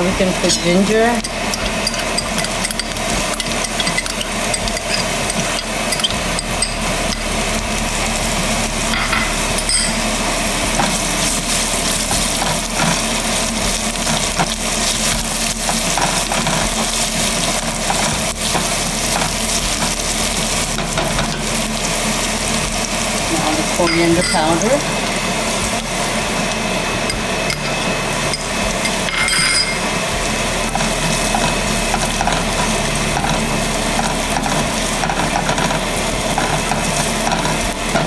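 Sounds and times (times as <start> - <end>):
food sizzling in hot oil: 0.0 - 38.0
spatula tapping and scraping: 1.2 - 7.3, 15.7 - 20.0.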